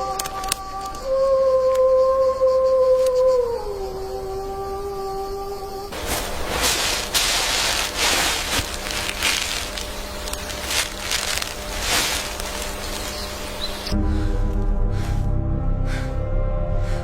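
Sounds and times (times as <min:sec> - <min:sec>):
crunching and rustling: 0:00.0 - 0:01.1, 0:05.9 - 0:14.0.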